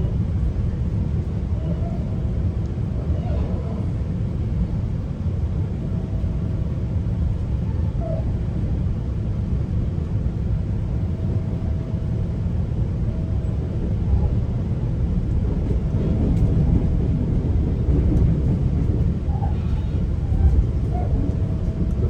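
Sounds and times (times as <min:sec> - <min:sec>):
train rumbling on rails: 0:00.0 - 0:22.0.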